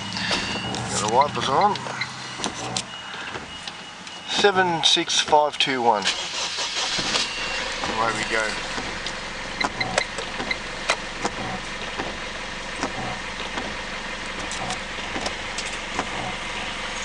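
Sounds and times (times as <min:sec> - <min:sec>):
diesel engine idling: 0:00.0 - 0:17.0
sharp clicks and knocks: 0:00.3 - 0:04.6, 0:08.7 - 0:13.8.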